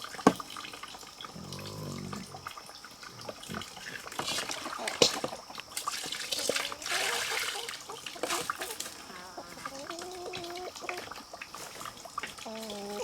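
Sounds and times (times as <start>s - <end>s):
water splashing and pouring: 0.0s - 13.0s
chicken calling: 6.7s - 11.1s.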